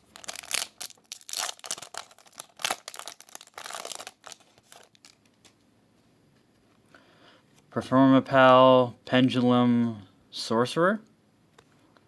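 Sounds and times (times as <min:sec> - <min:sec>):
trading cards rustling: 0:00.0 - 0:05.6.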